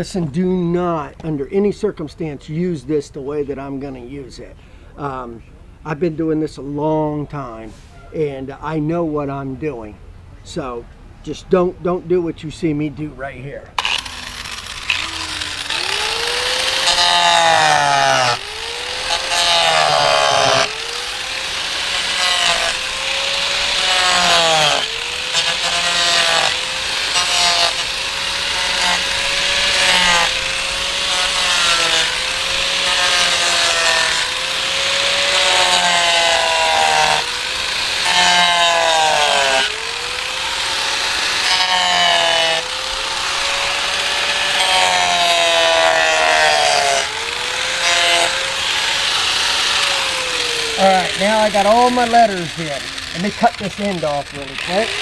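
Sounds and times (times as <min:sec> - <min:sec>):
power saw cutting wood: 0:13.7 - 0:55.0.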